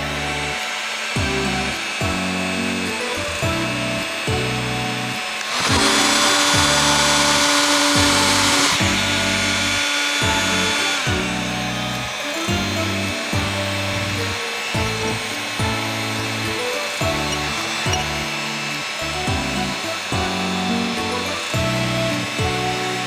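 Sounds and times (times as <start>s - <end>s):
music with steady beat: 0.0s - 23.0s
power tool whirring hiss: 0.0s - 23.0s.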